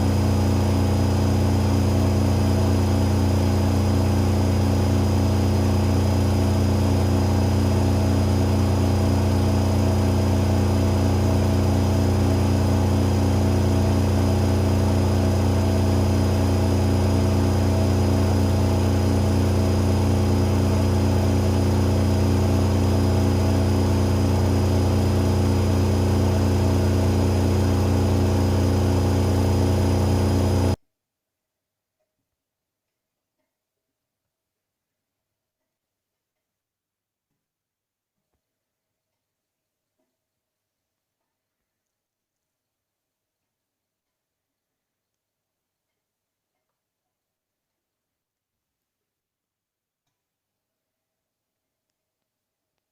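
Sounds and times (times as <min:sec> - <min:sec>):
washing machine spinning: 0:00.0 - 0:30.8.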